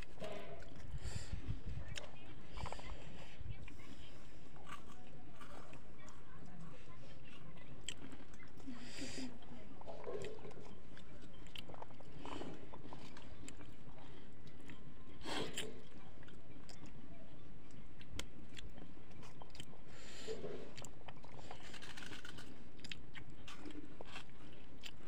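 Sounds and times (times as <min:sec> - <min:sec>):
person chewing and biting: 0:04.4 - 0:06.2, 0:07.3 - 0:16.9, 0:18.0 - 0:25.0.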